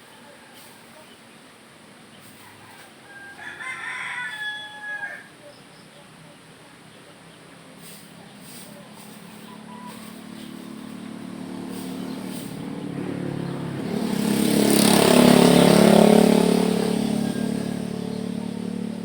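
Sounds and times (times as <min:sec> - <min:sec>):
vehicle driving past: 0:08.9 - 0:19.0.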